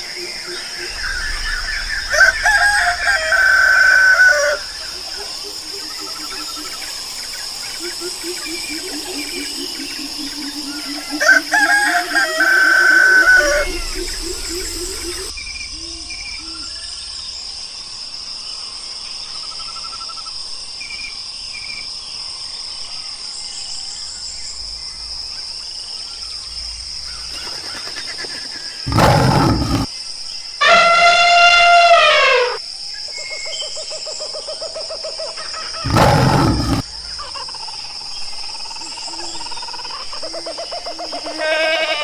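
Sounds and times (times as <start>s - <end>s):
pitched animal call bending down: 28.9s - 29.9s, 35.8s - 36.8s
rough animal call: 28.9s - 29.9s, 30.6s - 32.6s, 35.8s - 36.8s.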